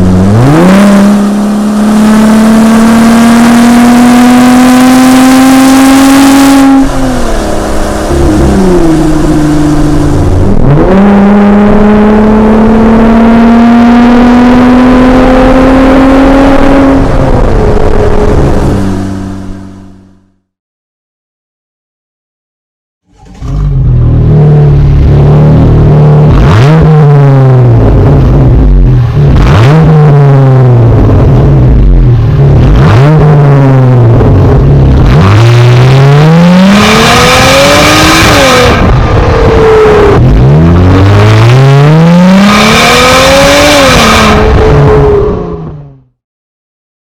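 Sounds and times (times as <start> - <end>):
car engine idling and revving: 0.0 - 20.4, 23.1 - 46.2.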